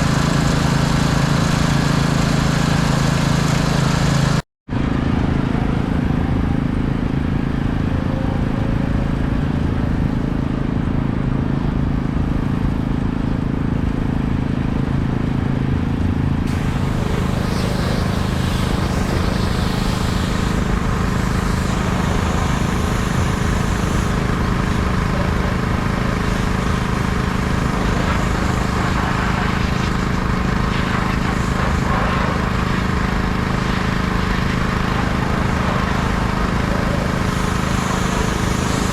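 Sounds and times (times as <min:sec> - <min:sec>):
pressure washer engine droning: 0:00.0 - 0:38.9
water spray hiss: 0:16.5 - 0:38.9.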